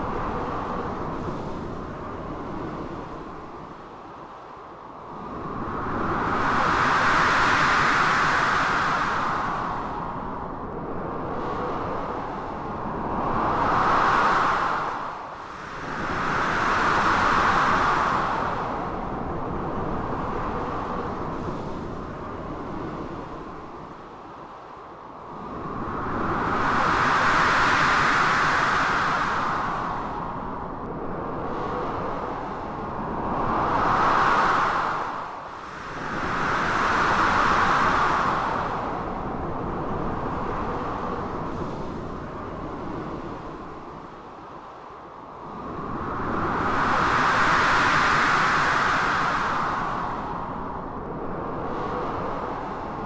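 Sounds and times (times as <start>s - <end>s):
blizzard wind gusting: 25.3s - 53.0s.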